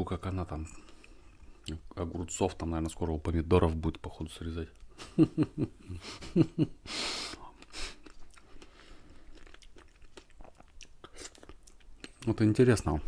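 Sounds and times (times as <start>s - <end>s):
breathy hiss: 6.0s - 8.0s
wet chewing mouth sounds: 7.3s - 12.4s.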